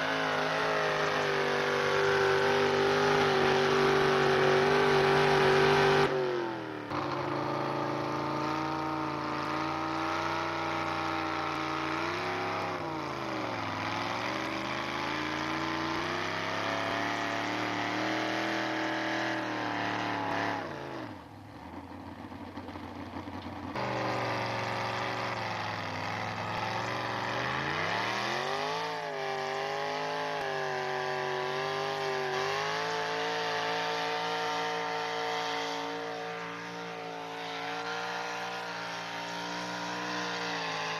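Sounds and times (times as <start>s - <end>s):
truck engine revving under load: 0.0s - 22.8s, 23.4s - 40.9s.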